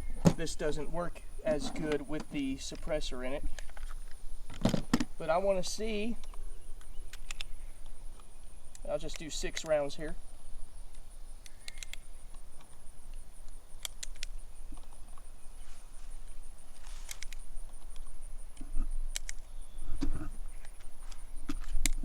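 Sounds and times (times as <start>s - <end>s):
faint high-pitched whine: 0.0s - 22.0s
light clicks handling a firearm: 6.2s - 9.9s, 10.9s - 15.3s, 16.9s - 19.5s.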